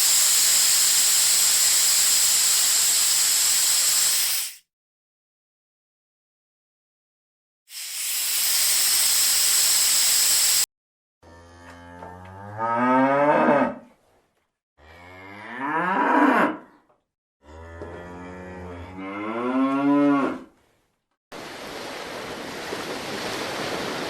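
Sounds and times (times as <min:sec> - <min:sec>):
cow mooing: 0:11.2 - 0:13.9, 0:14.8 - 0:16.8, 0:17.4 - 0:20.5.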